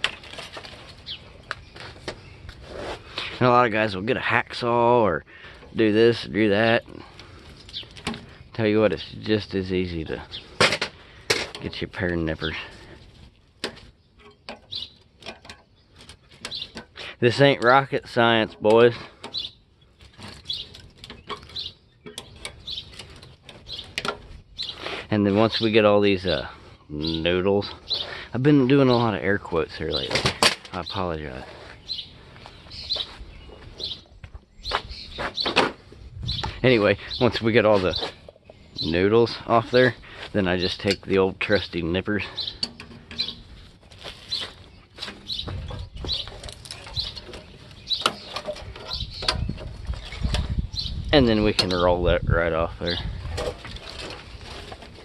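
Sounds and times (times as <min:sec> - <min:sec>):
small bird chirping: 0:06.2 - 0:11.2, 0:13.8 - 0:17.0, 0:19.2 - 0:25.7, 0:26.8 - 0:30.1, 0:30.8 - 0:52.0
sharp clicks and scraping: 0:13.3 - 0:25.6, 0:42.4 - 0:50.6, 0:53.3 - 0:55.0.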